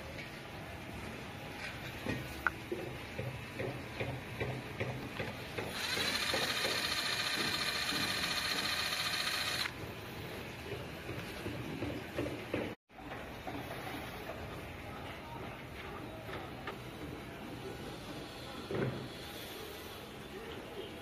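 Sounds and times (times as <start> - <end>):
small mechanism whirring: 5.7 - 9.7.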